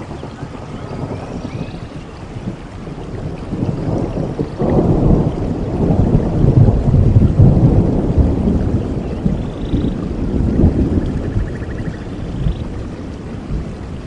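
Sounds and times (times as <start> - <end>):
rain falling: 0.0 - 14.0
thunder rumbling: 0.0 - 14.0.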